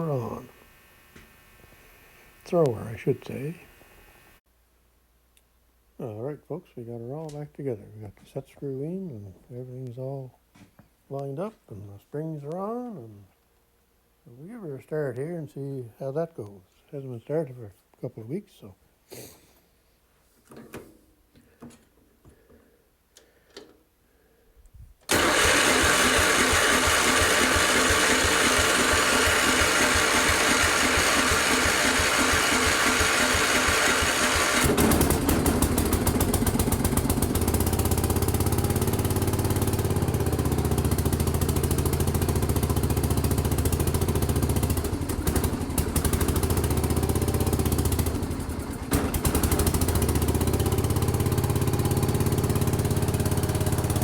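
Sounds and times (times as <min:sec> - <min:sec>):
garden tractor engine starting: 0:00.0 - 0:04.4, 0:25.1 - 0:54.0.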